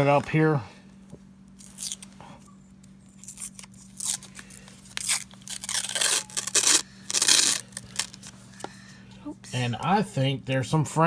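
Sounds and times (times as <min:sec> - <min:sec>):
paper wrapper tearing: 0:01.6 - 0:02.1, 0:03.1 - 0:08.4.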